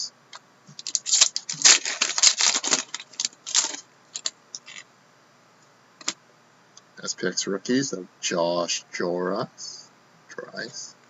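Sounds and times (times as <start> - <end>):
trading cards and wrapping crinkling: 0.7 - 4.8.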